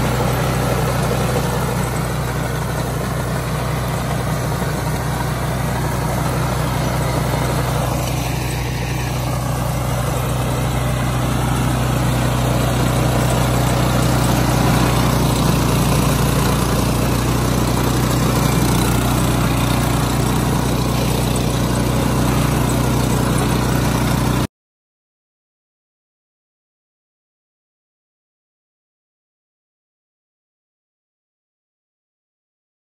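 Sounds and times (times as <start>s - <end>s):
flail mower engine humming: 0.0s - 24.5s.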